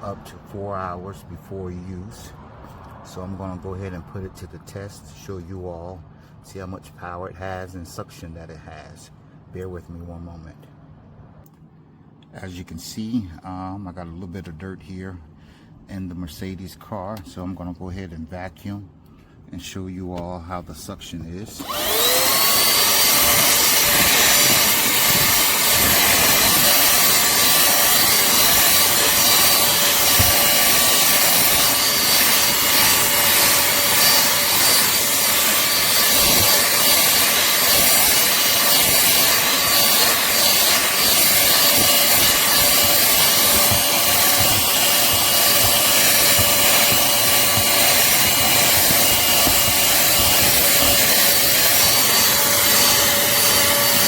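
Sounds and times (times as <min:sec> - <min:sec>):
vacuum nozzle scuffing: 0:21.2 - 0:54.0
handheld vacuum motor whine: 0:21.6 - 0:54.0.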